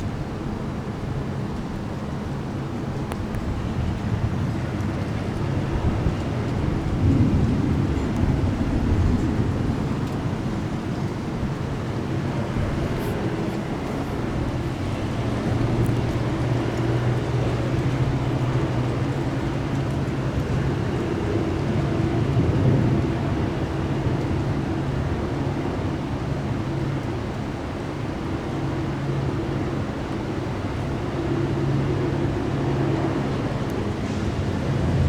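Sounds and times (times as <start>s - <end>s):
rain: 0.0s - 35.0s
wind: 0.0s - 35.0s.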